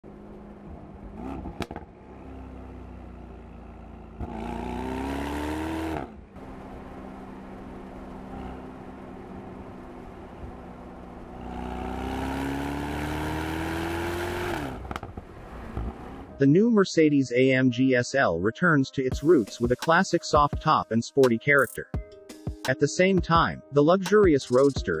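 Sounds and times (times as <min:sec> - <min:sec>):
car engine droning and accelerating: 0:00.0 - 0:16.4.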